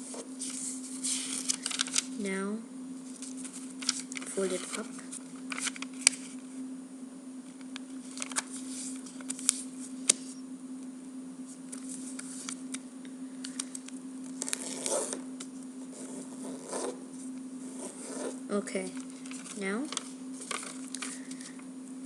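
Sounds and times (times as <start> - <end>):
paper rustling while folded: 0.0 - 2.2, 3.0 - 6.4, 8.0 - 10.4, 11.7 - 12.7, 17.1 - 21.6
crisp paper creasing clicks: 1.1 - 2.1, 3.3 - 6.3, 8.0 - 10.3, 13.4 - 15.2, 18.8 - 21.7.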